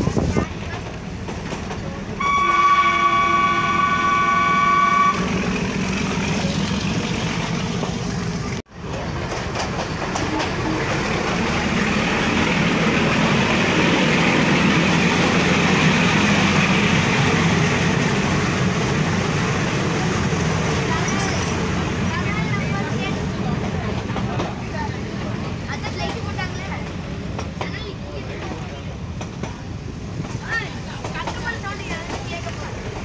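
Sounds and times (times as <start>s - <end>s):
train running rumble: 0.0s - 33.0s
locomotive horn: 2.2s - 5.4s.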